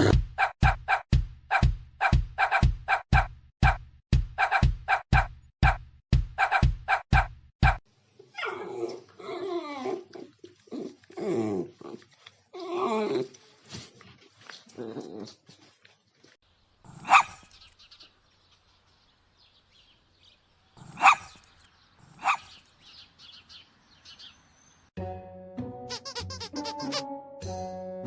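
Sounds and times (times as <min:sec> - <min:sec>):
dog barking: 0:00.4 - 0:03.3, 0:04.4 - 0:05.3, 0:06.4 - 0:07.8, 0:17.0 - 0:17.4, 0:20.9 - 0:21.4, 0:22.2 - 0:22.6.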